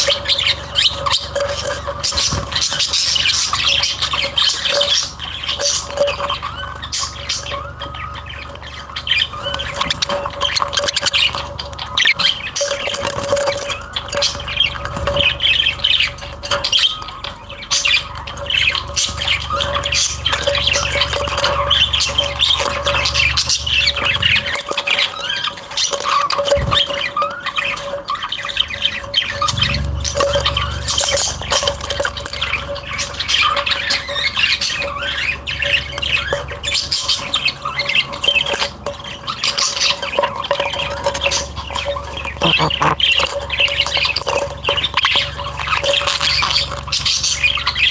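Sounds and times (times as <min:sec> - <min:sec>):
cage birds chirping and squawking: 0:00.0 - 0:47.9
steady low hum: 0:29.0 - 0:33.8.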